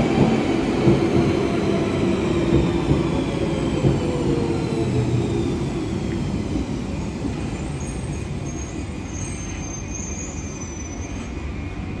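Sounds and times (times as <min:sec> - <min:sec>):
train wheels rumbling: 0:00.0 - 0:12.0
high wheel squeal: 0:07.6 - 0:11.4.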